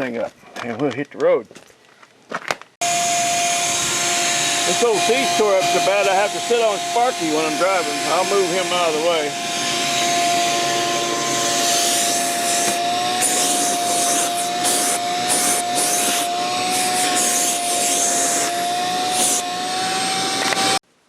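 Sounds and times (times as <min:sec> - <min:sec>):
vacuum cleaner running: 0:02.8 - 0:20.8.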